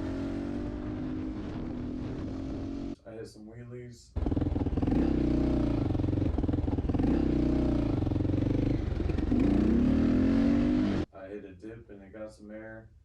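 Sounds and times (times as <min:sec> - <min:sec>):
motorcycle engine running: 0:04.2 - 0:11.0.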